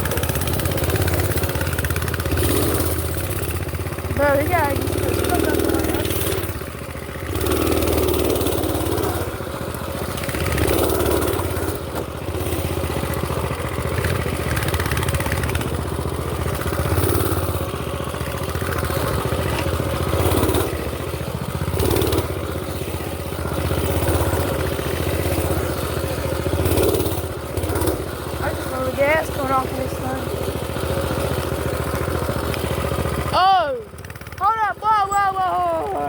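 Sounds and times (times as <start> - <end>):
mini bike engine running: 0.0 - 36.0.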